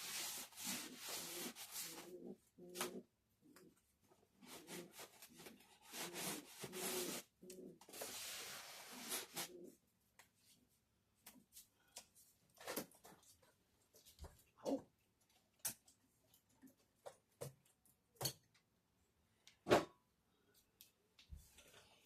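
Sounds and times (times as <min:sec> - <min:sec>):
rubbing and scraping on hard surface: 0:00.0 - 0:03.0, 0:04.4 - 0:09.8.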